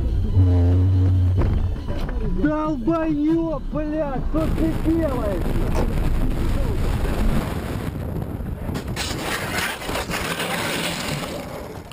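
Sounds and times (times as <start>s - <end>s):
car road and engine rumble: 0.0s - 9.0s
harsh rasping scraping noise: 8.8s - 11.9s.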